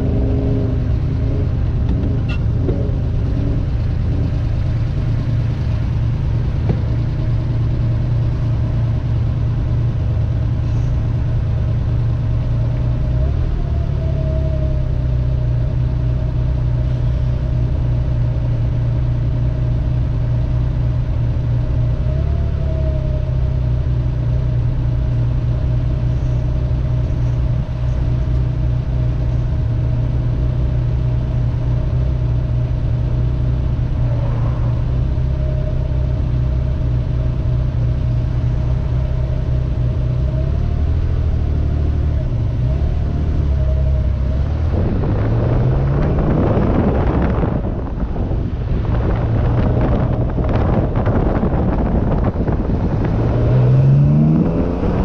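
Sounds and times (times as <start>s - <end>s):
car engine idling and revving: 0.0s - 55.0s
wind noise: 25.9s - 41.1s, 42.2s - 55.0s.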